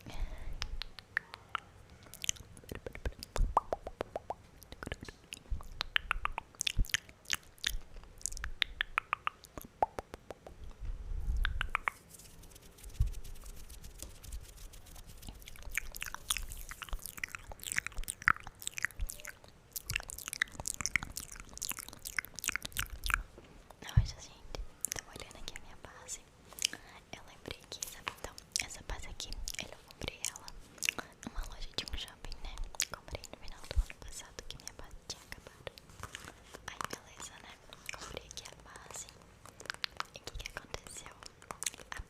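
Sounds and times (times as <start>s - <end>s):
lip smacks: 0.5s - 10.8s, 11.4s - 24.0s, 27.6s - 42.0s
tongue clicks: 0.6s - 10.8s, 11.4s - 12.0s, 15.2s - 24.0s, 27.6s - 34.9s, 35.7s - 42.0s.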